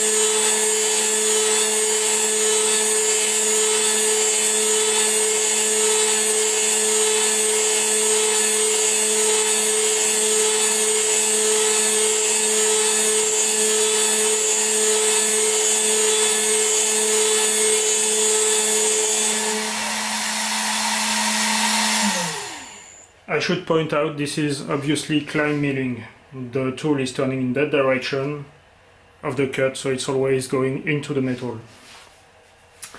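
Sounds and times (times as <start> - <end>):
end mill cutting metal: 0.0 - 23.0
milling machine spindle running: 0.0 - 23.0.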